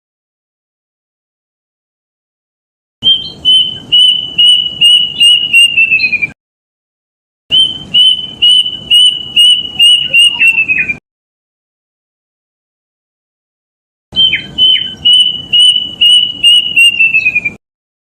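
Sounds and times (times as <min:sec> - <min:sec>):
cuckoo whistled song: 0:03.0 - 0:06.4, 0:07.5 - 0:11.0, 0:14.2 - 0:17.6.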